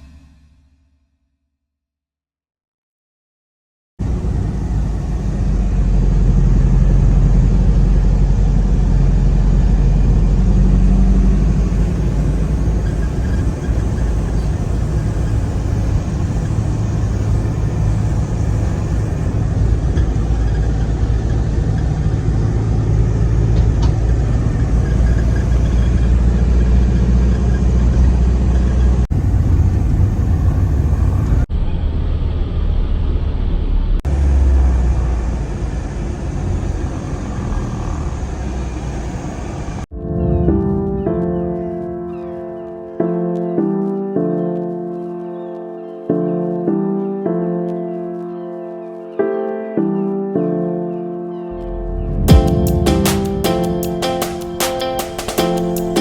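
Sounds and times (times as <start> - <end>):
vehicle engine and road noise: 4.0 - 41.8, 51.5 - 56.0.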